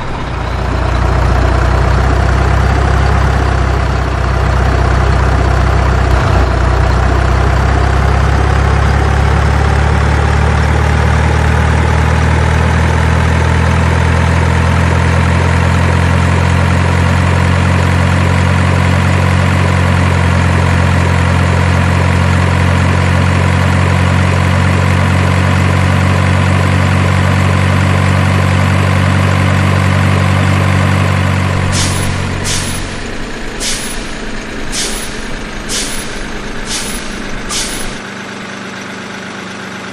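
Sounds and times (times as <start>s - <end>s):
diesel truck engine running: 0.0s - 39.9s
air brake hisses: 31.6s - 38.0s.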